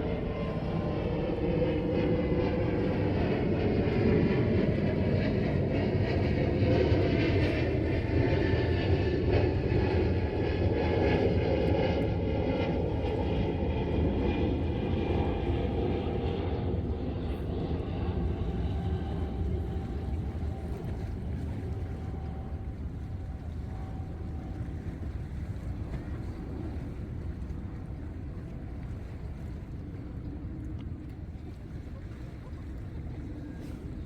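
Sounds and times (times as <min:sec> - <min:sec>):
engine drone: 0:00.0 - 0:27.0.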